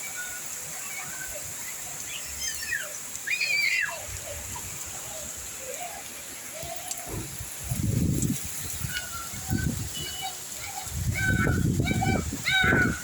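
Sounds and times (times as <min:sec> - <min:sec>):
light rain falling: 0:00.0 - 0:13.0.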